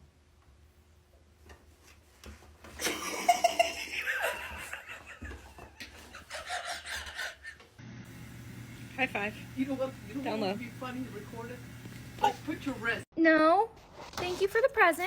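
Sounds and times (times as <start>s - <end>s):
person laughing: 2.8s - 7.7s.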